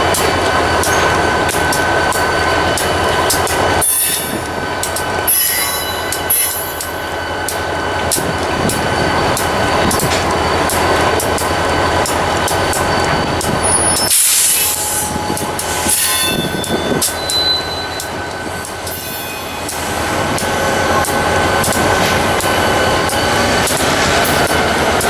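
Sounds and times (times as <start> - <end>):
steel wheels rumbling: 0.0 - 25.0
faint wheel squeal: 13.6 - 18.0.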